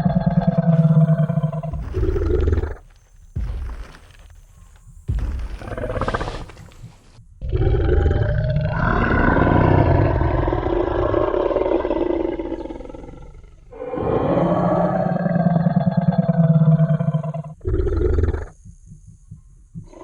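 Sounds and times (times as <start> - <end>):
deep growling dinosaur roar: 0.0 - 2.8, 7.4 - 18.5.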